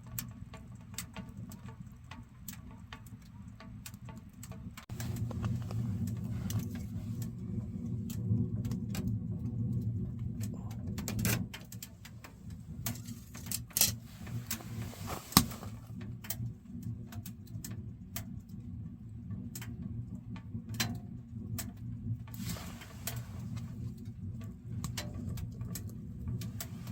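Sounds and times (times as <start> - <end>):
firewood crackling and popping: 0.0 - 18.6, 19.5 - 26.9.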